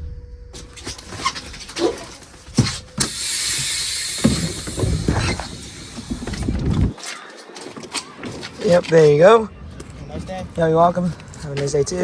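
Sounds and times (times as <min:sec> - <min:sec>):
bus engine idling: 0:00.6 - 0:06.9
steady hiss: 0:02.5 - 0:06.9.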